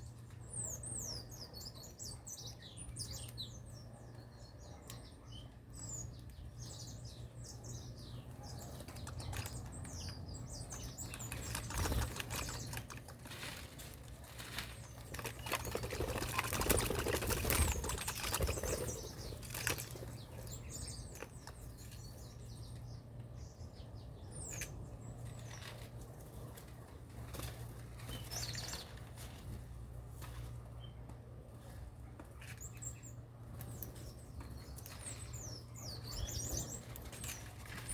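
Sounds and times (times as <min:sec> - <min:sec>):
small birds chirping: 0:00.0 - 0:37.9
wing flapping and rustling: 0:08.7 - 0:22.0, 0:25.2 - 0:30.7, 0:36.2 - 0:37.9.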